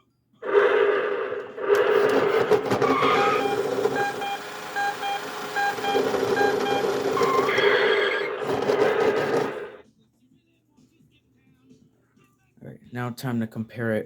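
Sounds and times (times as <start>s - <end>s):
toy electric motor whirring: 1.8s - 9.7s
short electronic tones: 2.9s - 8.5s.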